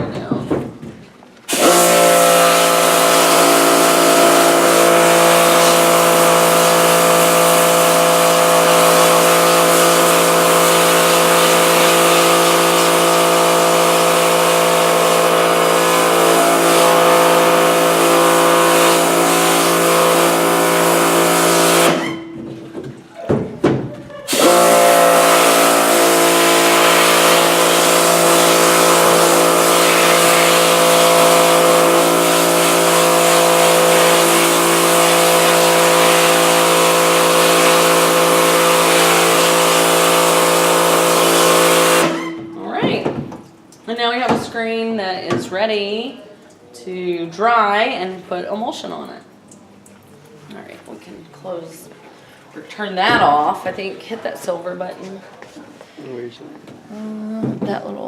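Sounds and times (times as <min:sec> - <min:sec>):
pressure washer motor and pump: 0:01.5 - 0:23.1, 0:24.3 - 0:43.8
hiss of water spray: 0:24.3 - 0:42.2.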